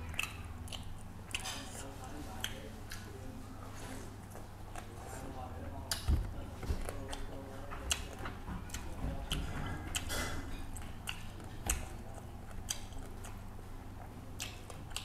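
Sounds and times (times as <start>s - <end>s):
wet mouth clicks and smacks: 0.0s - 1.6s, 10.8s - 11.9s, 12.6s - 13.4s, 14.4s - 15.0s
person chewing food: 0.0s - 3.1s, 4.0s - 5.0s, 5.8s - 15.0s
steady low hum: 0.0s - 15.0s.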